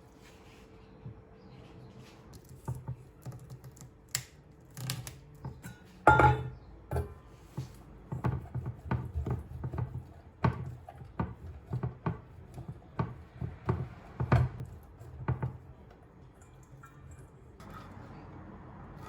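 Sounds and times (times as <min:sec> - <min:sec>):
kitchen items knocking: 0:06.1 - 0:07.2, 0:08.1 - 0:14.6.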